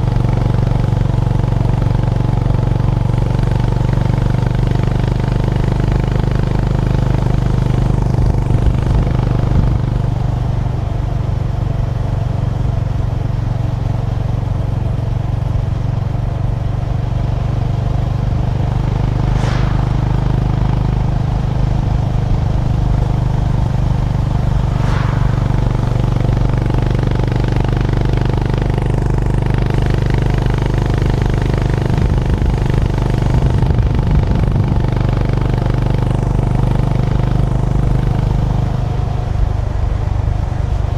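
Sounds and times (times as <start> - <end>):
brief sharp sounds: 18.7 - 28.0.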